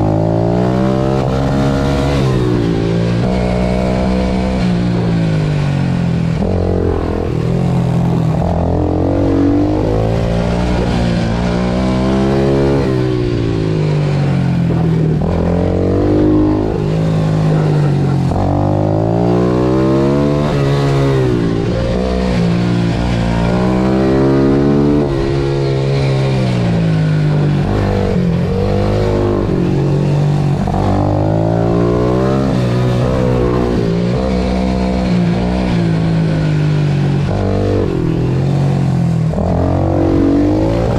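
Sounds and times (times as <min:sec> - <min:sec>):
pit bike engine revving: 0:00.0 - 0:40.9.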